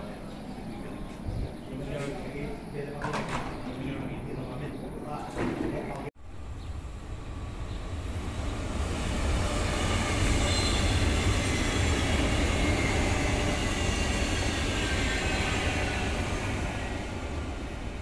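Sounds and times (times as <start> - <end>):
electric train passing: 6.2 - 18.0.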